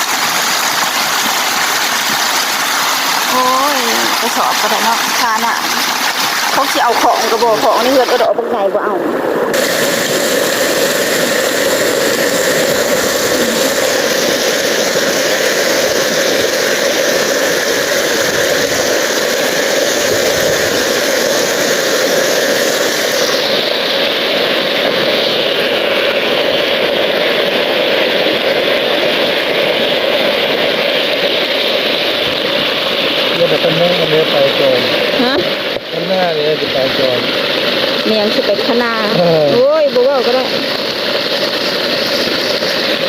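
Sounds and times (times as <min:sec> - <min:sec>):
floodwater rushing through channel: 0:00.0 - 0:43.0.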